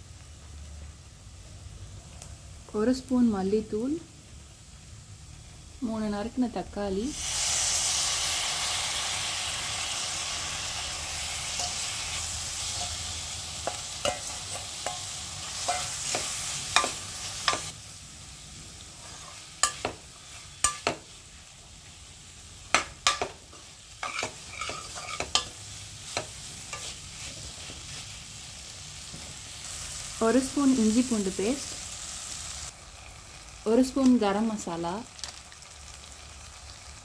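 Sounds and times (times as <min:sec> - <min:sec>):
food sizzling in hot oil: 0:00.0 - 0:37.0
steel spoon scraping a pan: 0:11.2 - 0:17.7, 0:18.9 - 0:20.9, 0:23.0 - 0:28.2.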